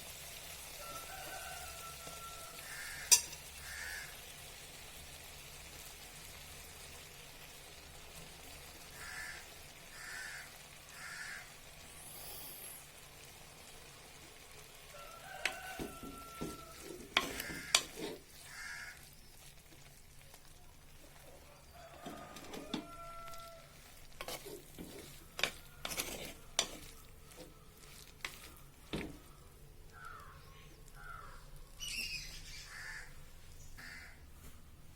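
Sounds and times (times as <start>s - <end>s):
faint sizzle: 0.0s - 34.9s
spoon stirring in a pan: 0.4s - 4.1s, 13.6s - 30.3s
spoon tapping against pan: 3.0s - 3.5s, 15.4s - 18.1s.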